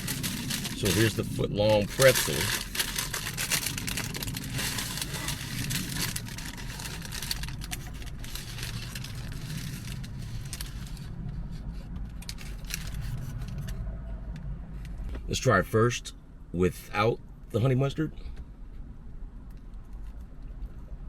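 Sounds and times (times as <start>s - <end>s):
paper wrapper rustling: 0.0s - 11.1s, 12.2s - 13.7s
car interior engine hum: 0.0s - 21.0s.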